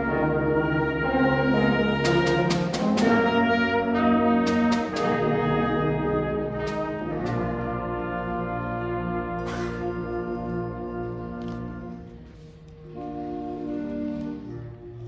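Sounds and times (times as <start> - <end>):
brass band sustained chords: 0.0 - 15.0
sharp percussion strikes: 2.0 - 3.4, 4.4 - 5.4, 6.5 - 7.7.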